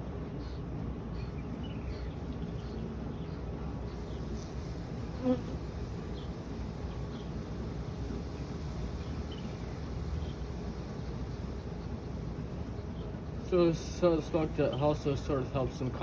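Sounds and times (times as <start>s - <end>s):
honeybees buzzing: 1.2s - 16.0s.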